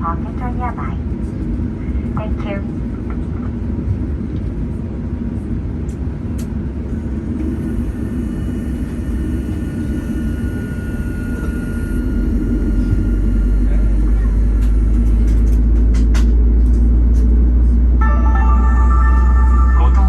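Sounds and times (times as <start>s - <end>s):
aircraft cabin rumble: 0.0s - 20.0s
thin steady whine: 6.9s - 15.4s, 17.9s - 20.0s.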